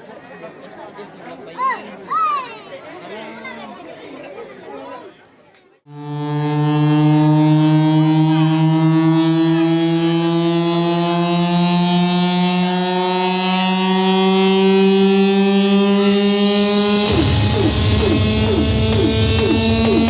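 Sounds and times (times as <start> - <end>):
buzzy horn-like tone: 5.9 - 20.0.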